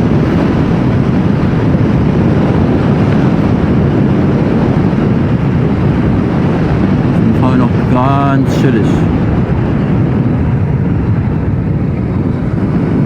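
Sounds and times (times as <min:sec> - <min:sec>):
wind rush on microphone: 0:00.0 - 0:13.0.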